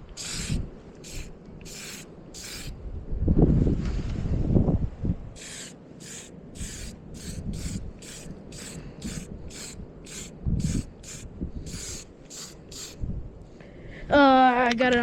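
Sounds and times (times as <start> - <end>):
spray paint can hissing: 0.1 - 2.7, 5.4 - 13.0.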